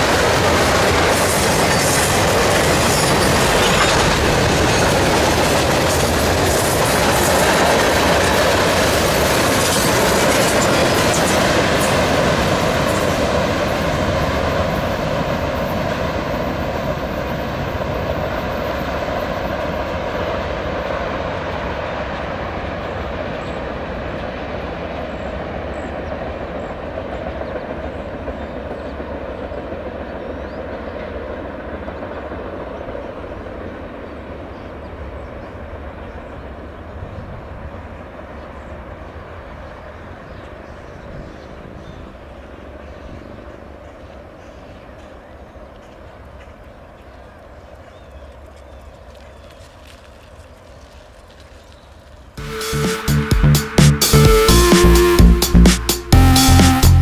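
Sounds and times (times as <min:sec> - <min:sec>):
freight train cars rolling: 0:00.0 - 0:28.0.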